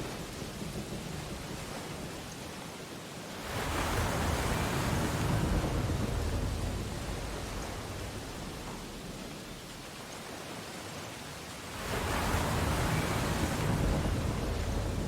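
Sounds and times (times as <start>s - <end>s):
background surf: 0.0s - 15.0s
wave breaking on beach: 3.4s - 8.9s, 11.6s - 15.0s.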